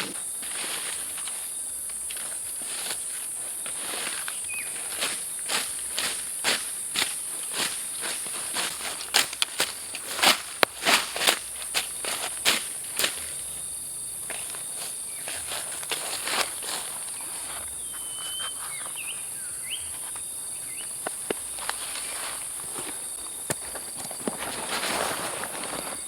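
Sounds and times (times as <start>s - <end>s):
high-pitched insect chorus: 0.0s - 26.0s
crunches on dry forest litter: 0.1s - 26.0s
short chirping calls: 17.7s - 21.0s.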